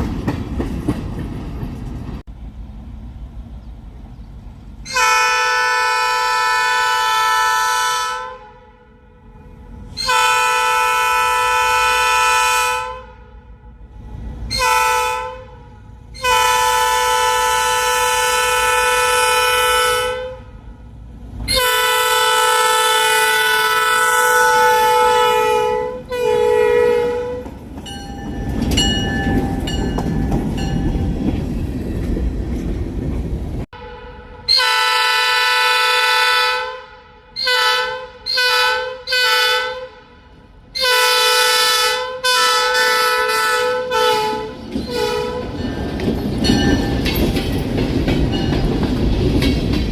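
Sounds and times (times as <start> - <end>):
train wheels clattering on rails: 0.0 - 2.2, 27.3 - 33.7, 44.0 - 49.9
locomotive air horn blasts: 4.8 - 13.8, 14.5 - 20.7, 21.5 - 27.6, 33.7 - 45.6.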